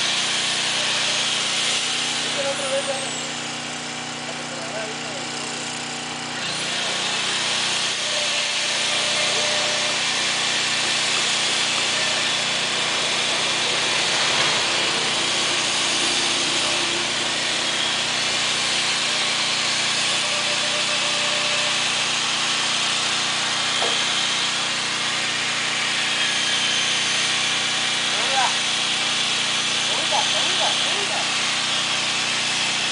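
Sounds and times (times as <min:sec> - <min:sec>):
engine running steadily: 0:02.2 - 0:07.1.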